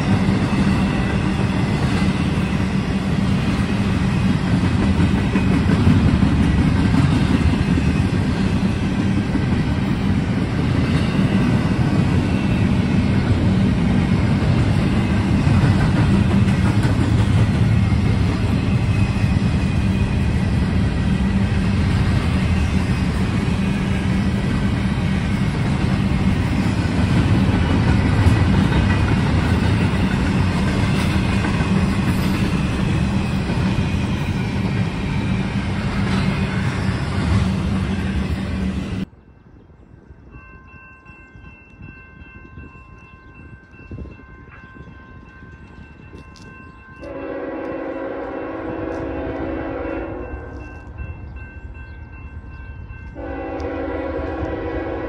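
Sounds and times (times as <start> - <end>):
train wheels rumbling on rails: 0.0 - 55.0
wheels clickety-clack: 3.4 - 12.6, 13.2 - 38.3.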